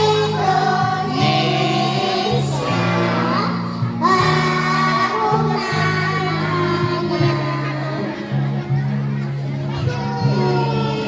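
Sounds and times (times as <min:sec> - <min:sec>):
children's choir singing: 0:00.0 - 0:08.8
musical accompaniment: 0:00.0 - 0:10.5.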